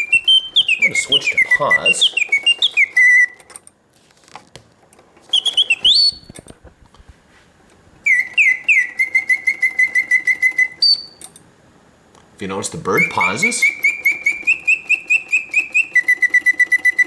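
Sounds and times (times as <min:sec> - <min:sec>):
mechanical bird whistling: 0:00.0 - 0:03.6, 0:05.3 - 0:06.5, 0:08.0 - 0:11.4, 0:12.8 - 0:17.0
mechanism ticking: 0:00.0 - 0:03.8, 0:08.1 - 0:17.0.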